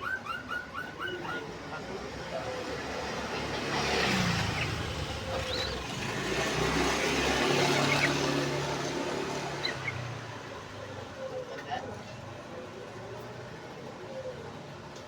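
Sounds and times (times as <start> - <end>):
motor vehicle passing: 1.2 - 11.4.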